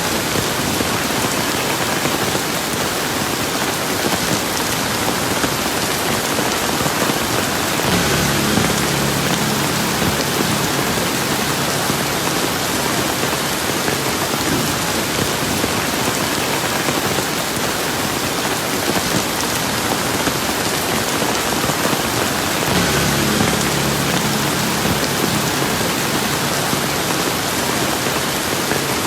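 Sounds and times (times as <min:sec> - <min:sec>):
rain pattering on surfaces: 0:00.0 - 0:29.0
faint low hum: 0:07.9 - 0:14.2, 0:22.7 - 0:28.9.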